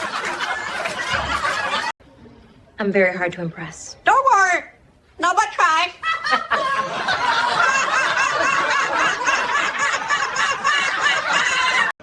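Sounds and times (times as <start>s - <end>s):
people snickering and chuckling: 0.0s - 2.0s, 6.0s - 12.0s.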